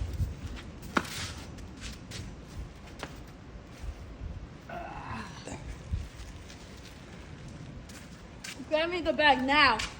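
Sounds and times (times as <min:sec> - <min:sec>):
rustling and scuffing scrapes: 0:00.0 - 0:04.4, 0:05.8 - 0:09.1.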